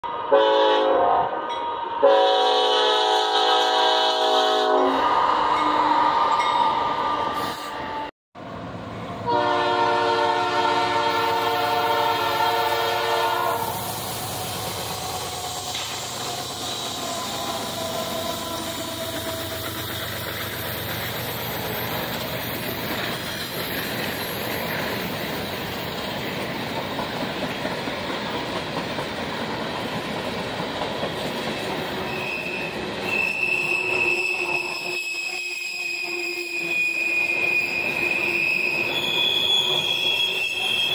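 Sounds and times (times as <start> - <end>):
train air horn: 0.0 - 8.1, 9.2 - 14.6, 16.5 - 20.1, 32.1 - 39.1
freight cars rolling on rail: 2.6 - 40.9
high wheel squeal: 13.5 - 26.0, 31.9 - 40.9.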